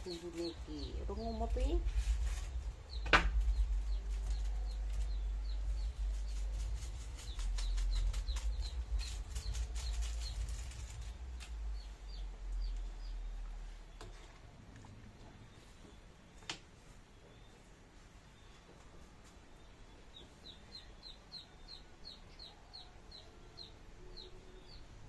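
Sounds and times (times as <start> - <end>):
steady low rumble: 0.0 - 15.6
small birds chirping: 0.0 - 25.0
sharp knock: 3.0 - 3.6.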